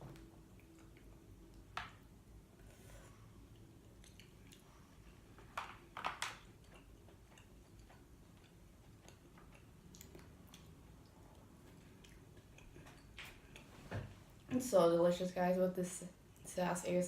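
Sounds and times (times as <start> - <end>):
chewing ticks: 3.4 - 5.3, 6.5 - 13.7
wet eating smacks: 6.5 - 13.7.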